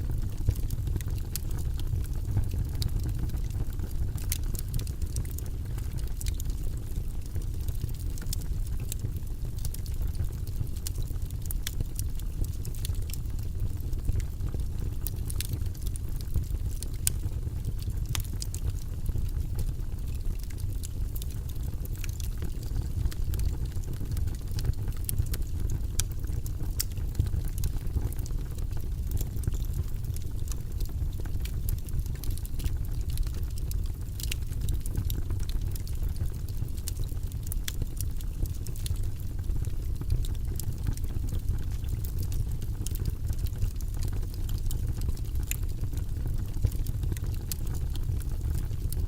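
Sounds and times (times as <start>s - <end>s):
low rumble of flames: 0.0s - 49.0s
wood fire roaring and crackling: 0.0s - 49.0s.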